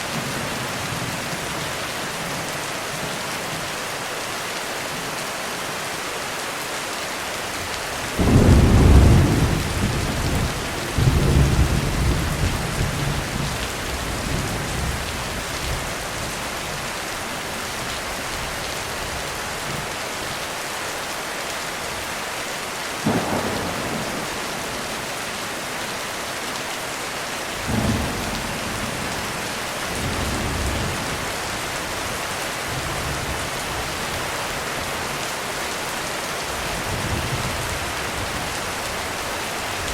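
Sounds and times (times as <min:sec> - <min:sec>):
heavy rain: 0:00.0 - 0:39.9
thunder rumbling: 0:08.1 - 0:15.8, 0:23.0 - 0:26.6, 0:27.6 - 0:33.5.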